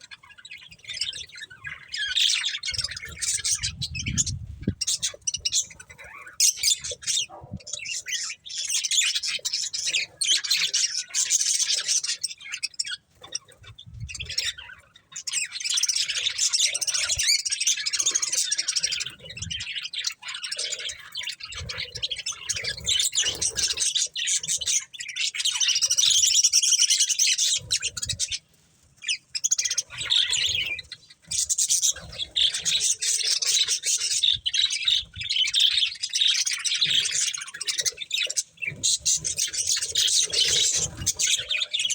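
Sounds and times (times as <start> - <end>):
budgerigars chirping and chattering: 0.0 - 41.9.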